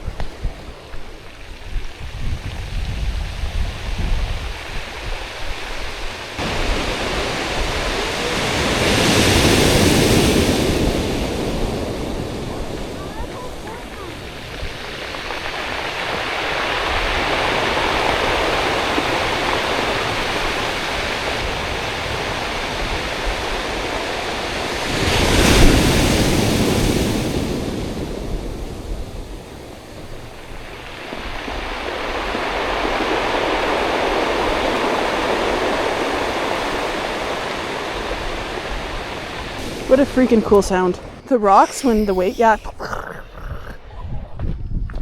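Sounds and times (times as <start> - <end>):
waves surging over stones: 3.8 - 40.6
wave crashing: 5.9 - 21.2.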